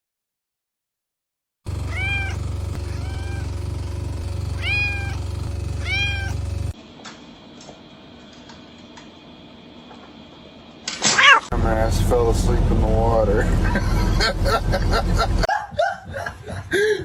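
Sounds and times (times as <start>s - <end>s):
loud steady low hum: 1.7s - 6.8s, 11.5s - 15.5s
cat meowing: 1.8s - 3.5s, 4.6s - 5.2s, 5.8s - 6.4s, 11.1s - 11.5s.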